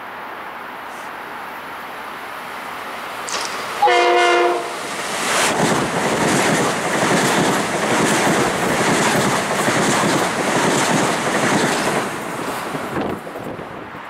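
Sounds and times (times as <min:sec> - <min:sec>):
train rolling rush: 0:00.0 - 0:14.0
train horn chord: 0:03.8 - 0:04.8
train wheels clattering: 0:04.8 - 0:13.4.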